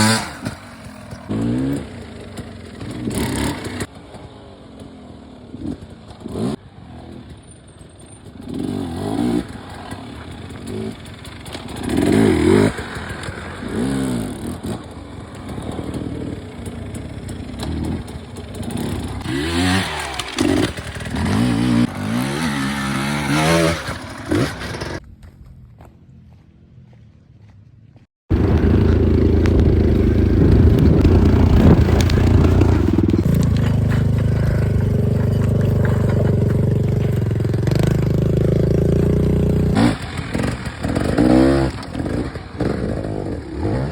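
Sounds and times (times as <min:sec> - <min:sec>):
dirt bike engines revving: 0:00.0 - 0:25.0, 0:28.3 - 0:43.9.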